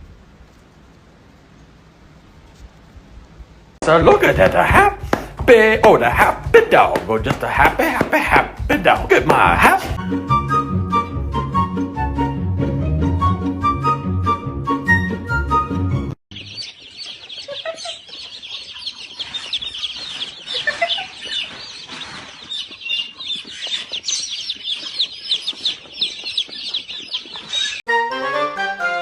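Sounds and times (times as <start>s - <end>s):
birds peeping: 16.3s - 27.8s.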